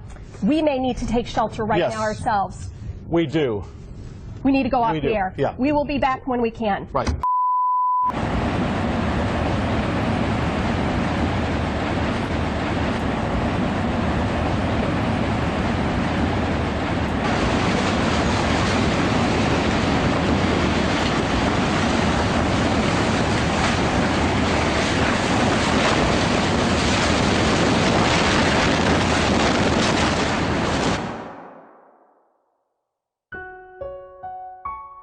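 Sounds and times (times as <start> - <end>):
tornado roaring: 8.1 - 31.7.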